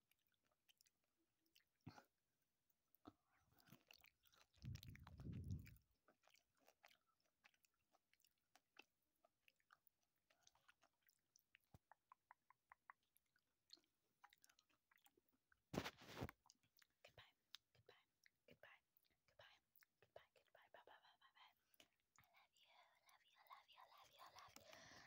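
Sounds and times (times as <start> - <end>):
chewing candy: 0.0 - 25.0
small mouth clicks: 3.6 - 8.2, 9.6 - 15.2, 24.2 - 25.0
muffled low rumble: 4.6 - 5.8.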